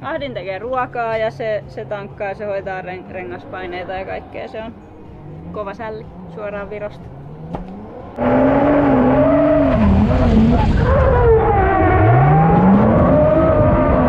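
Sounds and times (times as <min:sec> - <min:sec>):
car engine revving hard: 0:05.0 - 0:14.0.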